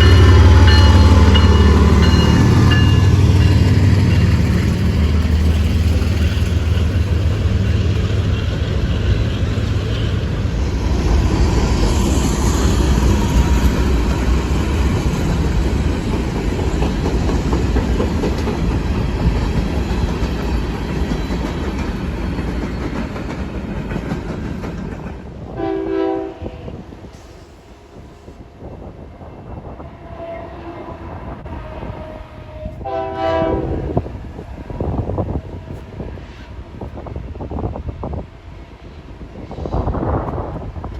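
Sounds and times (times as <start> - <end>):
train passing: 0.0 - 40.9
locomotive horn blasts: 25.6 - 26.8, 31.6 - 34.0.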